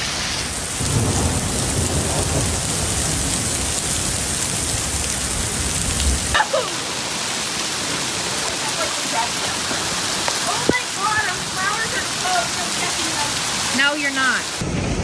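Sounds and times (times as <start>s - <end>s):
heavy rain pouring: 0.0s - 15.0s
low rumble: 14.6s - 15.0s.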